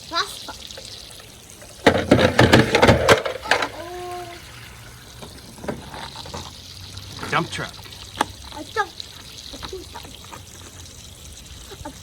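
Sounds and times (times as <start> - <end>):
toy splashing into water: 0.1 - 11.9.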